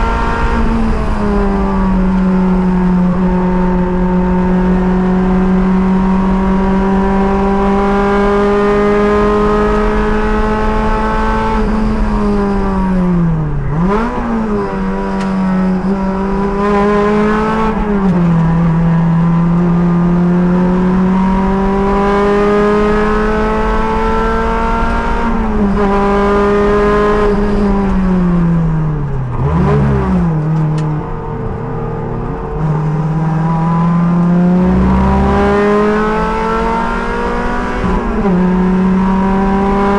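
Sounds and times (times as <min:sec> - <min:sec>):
sports car engine at full throttle: 0:00.0 - 0:39.9
car braking: 0:07.8 - 0:20.4, 0:22.8 - 0:39.9.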